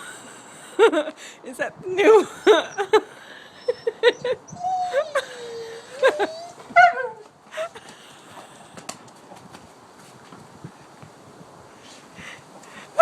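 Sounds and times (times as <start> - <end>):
dog whining and whimpering: 3.5 - 7.2.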